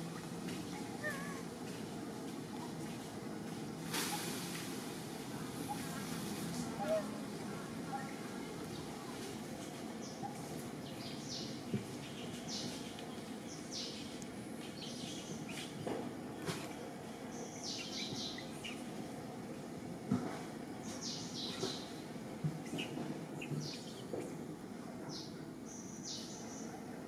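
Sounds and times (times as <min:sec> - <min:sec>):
birds chirping: 0:06.8 - 0:19.4, 0:20.8 - 0:24.4.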